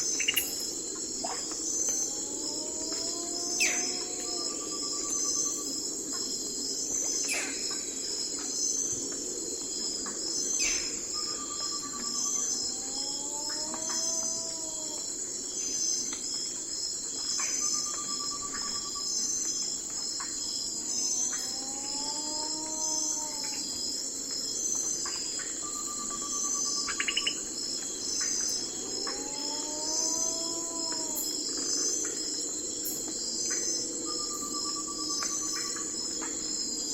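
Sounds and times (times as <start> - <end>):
crickets chirping: 0.0 - 36.9.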